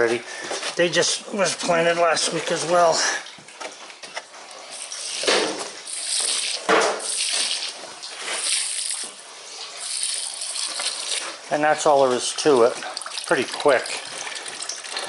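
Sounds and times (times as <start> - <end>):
water splashing onto plants: 4.7 - 9.2, 12.8 - 15.0.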